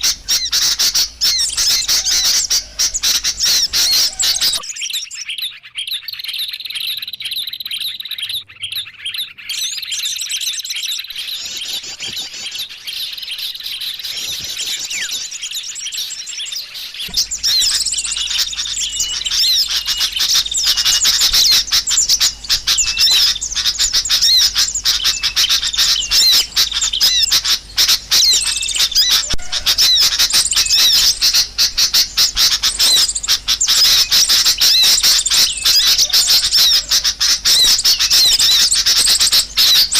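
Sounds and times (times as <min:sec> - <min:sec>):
low steady hum: 0:00.0 - 0:04.7, 0:16.8 - 0:39.9
small birds chirping: 0:00.0 - 0:39.9.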